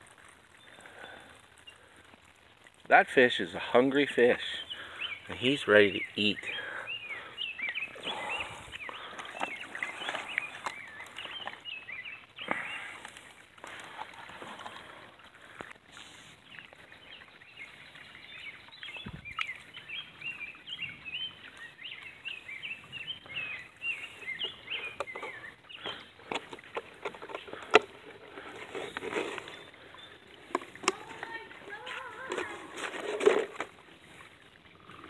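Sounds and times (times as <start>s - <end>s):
small bird chirping: 16.5s - 27.8s.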